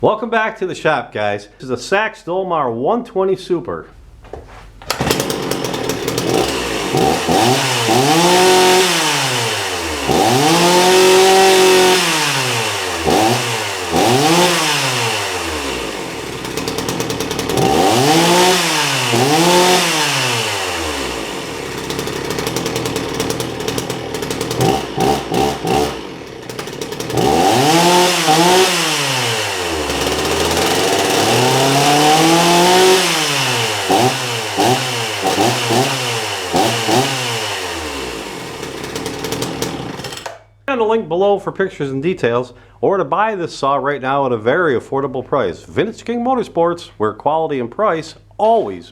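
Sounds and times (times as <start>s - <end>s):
chainsaw revving and idling: 4.9s - 40.5s.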